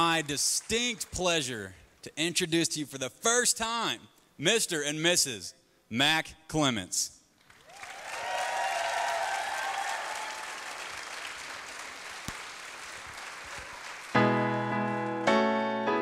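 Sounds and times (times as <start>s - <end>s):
guests applauding: 0.0s - 1.6s, 7.4s - 15.2s
piano playing loud chords: 14.2s - 16.0s.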